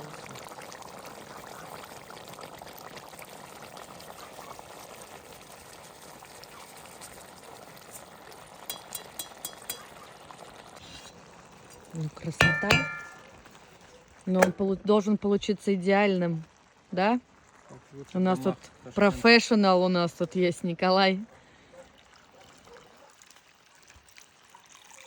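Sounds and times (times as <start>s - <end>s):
food sizzling in a pot: 0.0s - 13.2s
light clinks: 12.4s - 13.2s
ringing metal clang: 12.4s - 13.2s.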